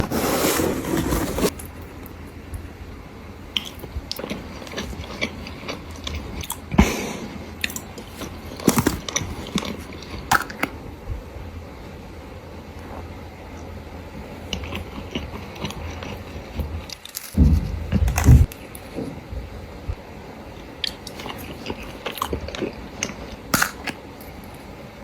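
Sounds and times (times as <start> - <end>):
person chewing pizza: 3.5 - 10.6, 12.8 - 19.0, 20.8 - 24.5.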